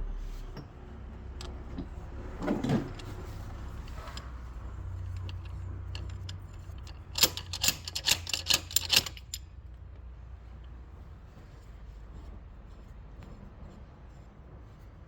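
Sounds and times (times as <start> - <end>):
hand tools clicking on metal: 5.0 - 9.5.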